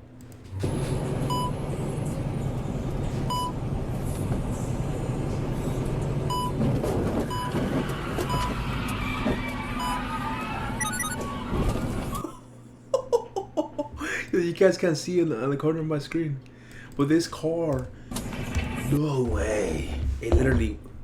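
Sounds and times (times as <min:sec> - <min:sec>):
engine and road rumble: 0:00.5 - 0:12.2
short high electronic beeps: 0:10.8 - 0:11.2.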